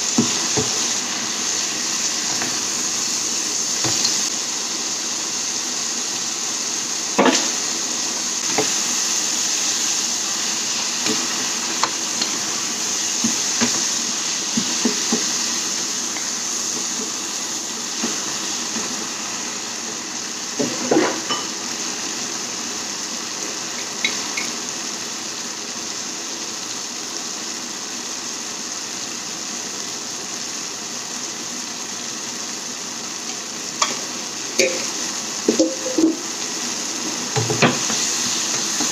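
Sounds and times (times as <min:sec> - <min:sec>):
food sizzling in a pan: 0:00.0 - 0:38.9
spoon knocking and scraping pan: 0:00.1 - 0:01.0, 0:03.8 - 0:04.3, 0:07.2 - 0:07.6, 0:08.4 - 0:08.9, 0:11.0 - 0:12.5, 0:13.1 - 0:17.2, 0:18.0 - 0:19.0, 0:20.6 - 0:21.6, 0:34.6 - 0:36.3, 0:37.0 - 0:38.9.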